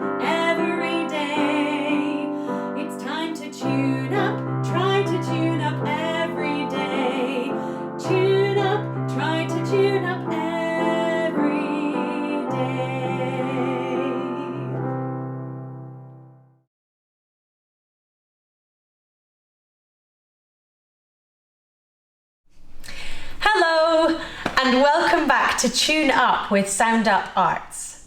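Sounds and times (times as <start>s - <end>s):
piano: 0.0s - 16.7s.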